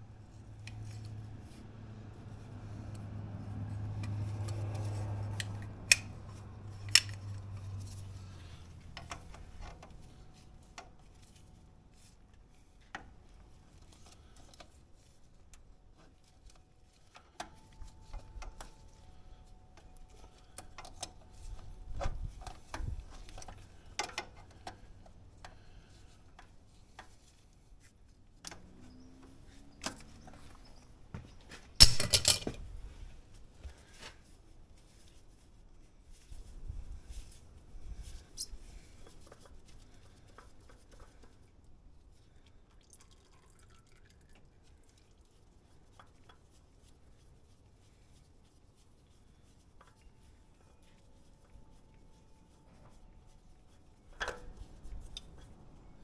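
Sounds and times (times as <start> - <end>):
metallic clinks of hand tools: 31.8 - 32.6
metal clatter: 31.8 - 32.7.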